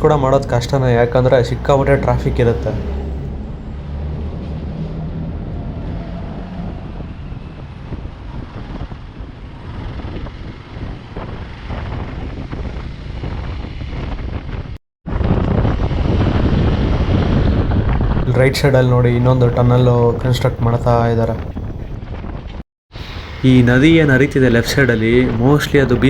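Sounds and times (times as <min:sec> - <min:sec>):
wind on microphone: 0:00.0 - 0:26.0
motorcycle running: 0:01.0 - 0:18.2.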